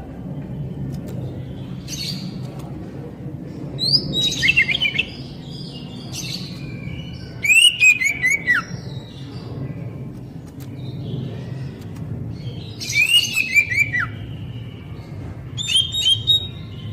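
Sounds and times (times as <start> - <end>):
steady low hum: 0.0 - 16.9
bird whistled song: 3.8 - 9.2, 12.5 - 16.9.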